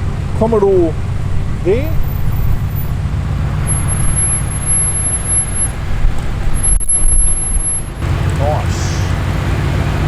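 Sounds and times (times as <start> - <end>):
car exhaust rumble: 0.0 - 10.0
high-pitched whine: 3.6 - 5.8, 6.6 - 8.0.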